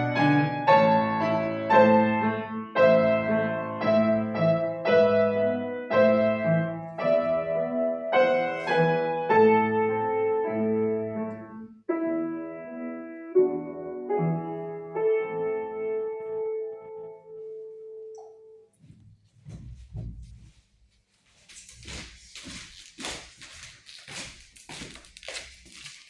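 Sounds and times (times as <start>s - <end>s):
solo piano chords: 0.0s - 19.1s.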